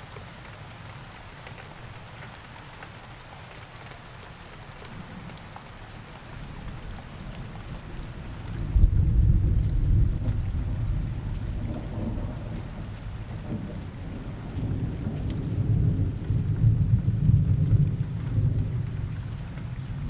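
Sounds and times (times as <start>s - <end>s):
steady rain: 0.0s - 20.0s
low rolling thunder: 7.8s - 20.0s.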